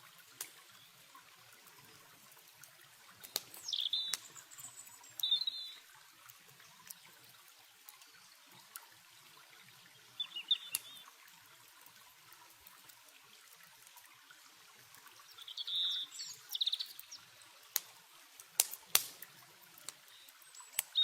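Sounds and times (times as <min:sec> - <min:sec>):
campfire crackles: 0:00.0 - 0:21.0
running water hiss: 0:00.0 - 0:21.0
small birds chirping: 0:03.2 - 0:05.9, 0:09.9 - 0:11.2, 0:15.0 - 0:17.7, 0:19.8 - 0:21.0.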